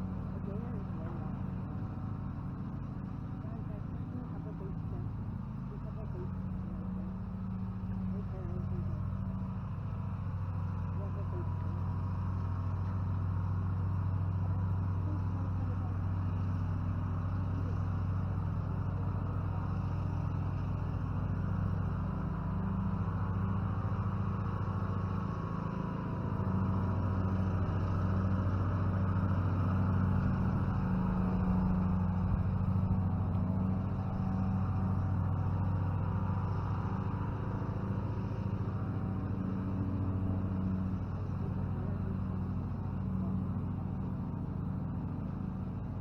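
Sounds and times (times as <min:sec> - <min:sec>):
motor humming: 0:17.4 - 0:46.0.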